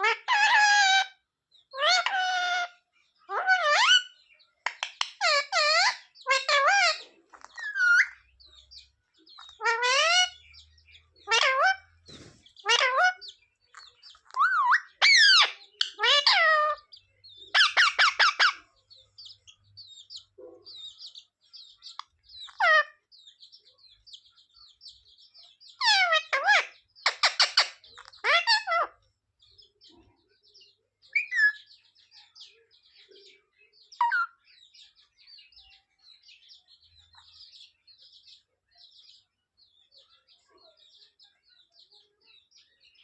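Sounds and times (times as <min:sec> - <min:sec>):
parrot chirping: 0:00.0 - 0:29.0, 0:31.0 - 0:32.0, 0:33.5 - 0:35.5
parrot calling and chattering: 0:00.0 - 0:29.1, 0:29.8 - 0:32.1, 0:32.9 - 0:35.5.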